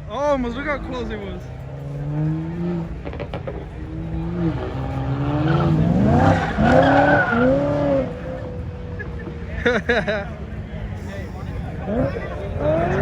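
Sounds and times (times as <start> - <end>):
car engine revving hard: 1.0 - 9.0, 11.6 - 13.0
tyres squealing: 4.5 - 9.2.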